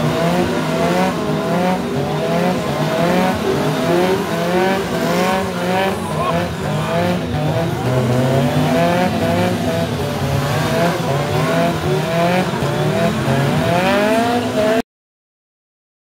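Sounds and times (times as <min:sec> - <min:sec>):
car engine revving hard: 0:00.0 - 0:14.8.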